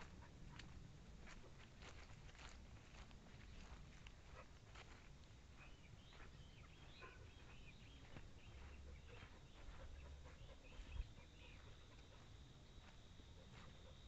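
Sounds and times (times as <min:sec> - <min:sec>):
faint bird chirps: 0:05.5 - 0:14.0.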